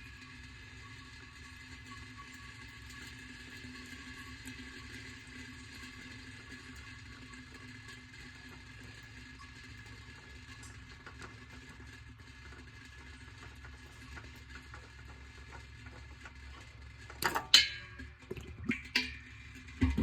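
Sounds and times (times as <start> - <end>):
workshop background hum: 12.9 - 20.0
metallic clanks of tools: 17.2 - 18.1.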